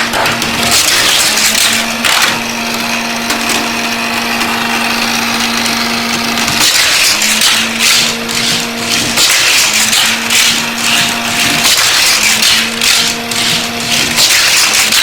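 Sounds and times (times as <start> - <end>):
plastic clatter: 0.0 - 4.6
toy track motor whirring: 0.0 - 15.0.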